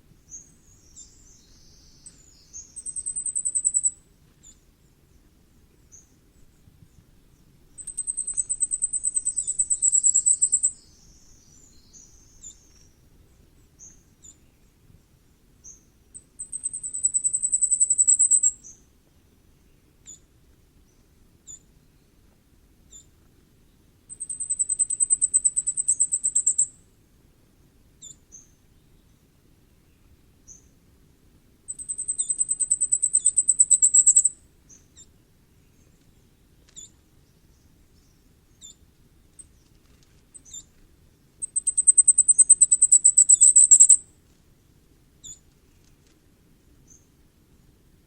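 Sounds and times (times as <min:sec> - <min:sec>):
faint bird call notes: 0:41.4 - 0:44.0.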